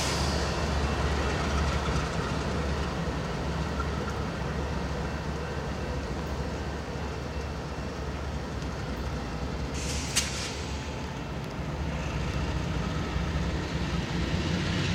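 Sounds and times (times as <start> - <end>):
sharp hiss of air: 0.0 - 0.6, 9.7 - 11.0
diesel locomotives rumbling: 0.0 - 14.9.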